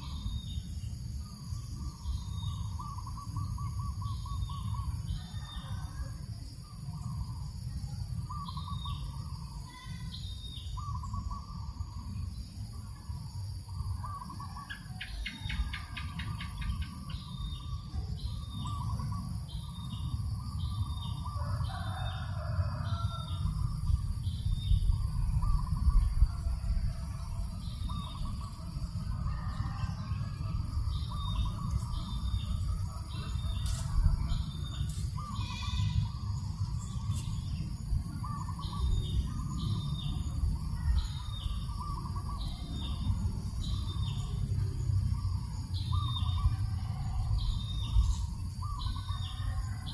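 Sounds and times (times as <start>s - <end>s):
birds calling: 0.0s - 5.8s, 8.2s - 12.3s, 13.7s - 49.8s
breeze rumbling on microphone: 23.4s - 29.3s
bird trill: 24.4s - 44.4s.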